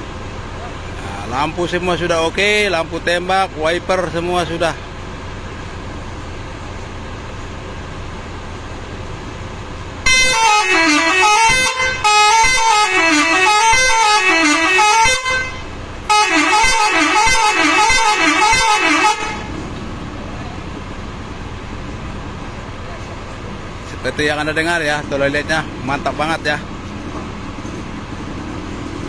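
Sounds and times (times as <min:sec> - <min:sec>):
bus horn playing melody: 0:10.0 - 0:19.6.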